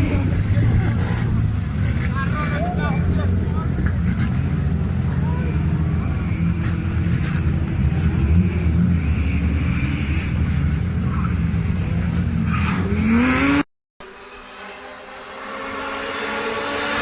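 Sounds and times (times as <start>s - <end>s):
rally car engine revving: 0.0s - 13.6s, 14.4s - 17.0s
quieter engine steady pitch: 14.0s - 17.0s.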